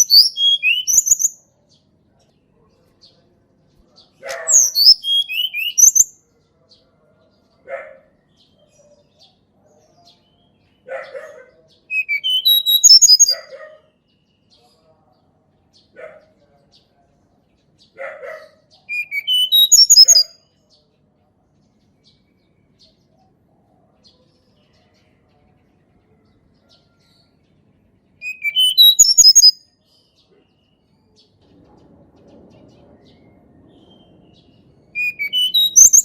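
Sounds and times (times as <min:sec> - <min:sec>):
bird singing whistled phrases: 0:00.0 - 0:01.4, 0:04.3 - 0:06.1, 0:11.9 - 0:13.5, 0:18.9 - 0:20.4, 0:28.2 - 0:29.6, 0:35.0 - 0:36.0.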